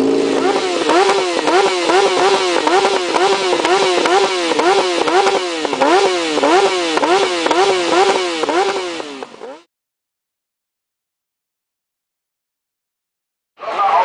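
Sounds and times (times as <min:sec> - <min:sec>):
motorcycle engine throttle blips: 0:00.0 - 0:09.7.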